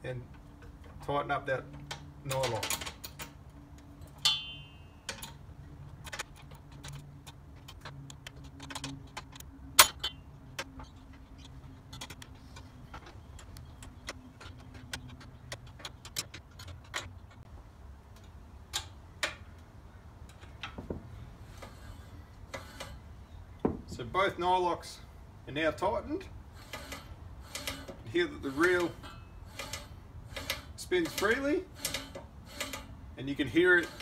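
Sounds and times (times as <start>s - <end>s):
tools clicking on metal nuts: 1.7s - 3.4s, 26.6s - 34.0s.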